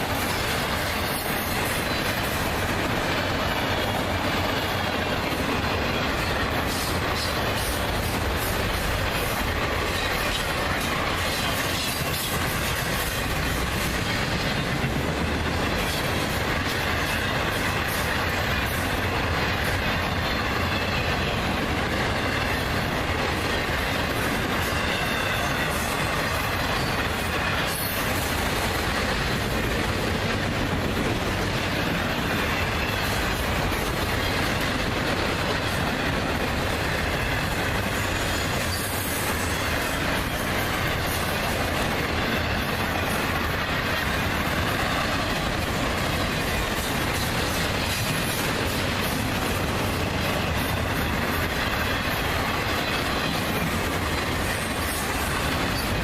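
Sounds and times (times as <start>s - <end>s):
steel wheels rolling on rail: 0.0s - 56.0s.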